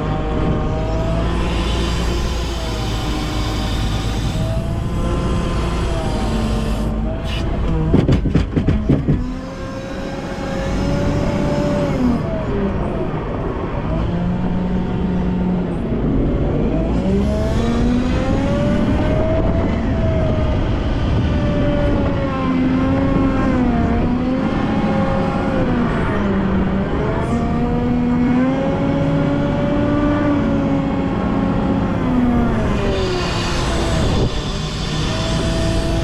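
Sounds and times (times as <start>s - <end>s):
loader diesel engine revving: 0.0s - 36.0s
loud knocks: 7.6s - 9.5s.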